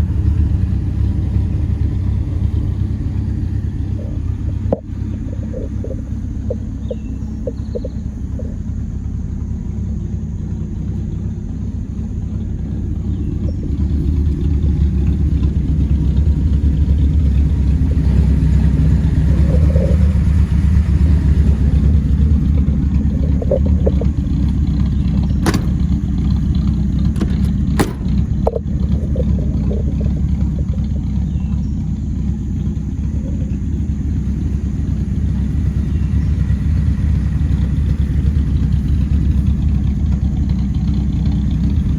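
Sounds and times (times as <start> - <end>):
pickup engine rumble: 0.0 - 41.9
sharp clicks: 22.5 - 30.9.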